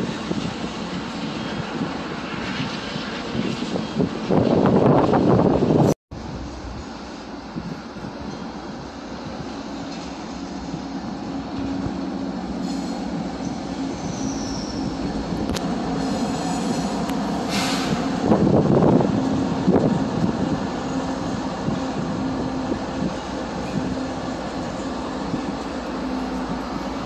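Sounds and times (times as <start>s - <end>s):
train rail cars rumbling: 0.0s - 27.0s
train wheel squeal: 9.7s - 18.9s.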